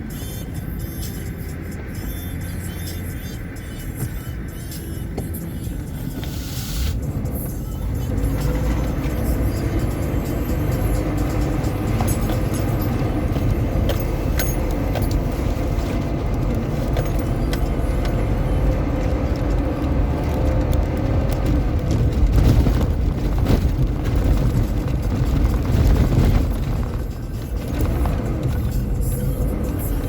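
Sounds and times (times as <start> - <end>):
car engine and road rumble: 0.0 - 30.0
small rattles and clicks: 8.0 - 30.0.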